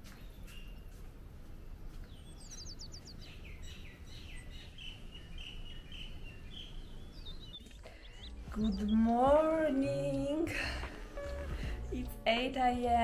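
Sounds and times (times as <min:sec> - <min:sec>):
birds singing: 0:01.6 - 0:10.4
steady low rumble: 0:07.8 - 0:13.0.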